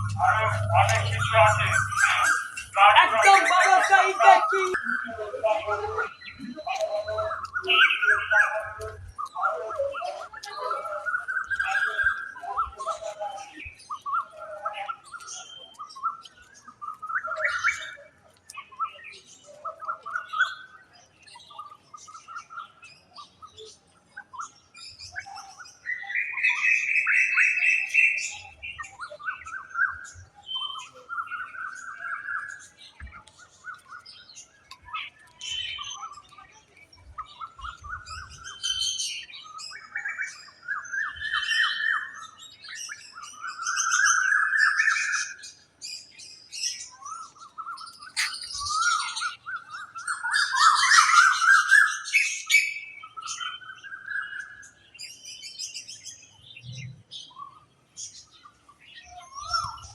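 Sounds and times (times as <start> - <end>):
bird trilling rising phrases: 0.0 - 5.2, 48.2 - 49.2
birds chirping: 0.0 - 59.9.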